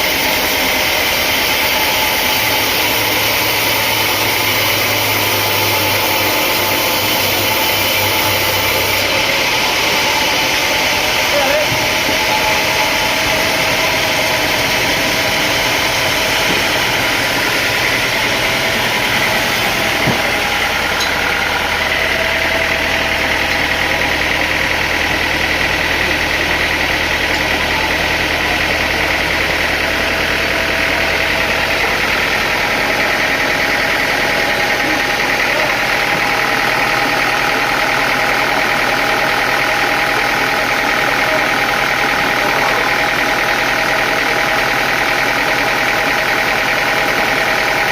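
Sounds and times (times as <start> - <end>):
sawmill machinery running: 0.0 - 47.9
low hum: 0.6 - 38.7.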